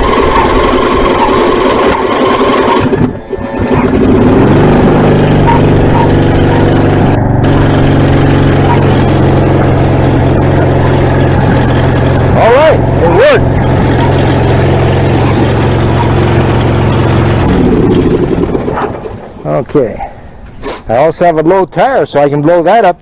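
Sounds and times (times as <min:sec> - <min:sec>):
tractor engine starting and idling: 0:00.0 - 0:19.6.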